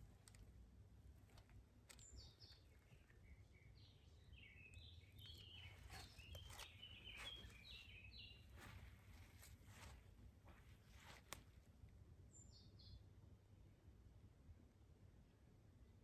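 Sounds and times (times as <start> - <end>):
songbird chirping: 0.0 - 11.5.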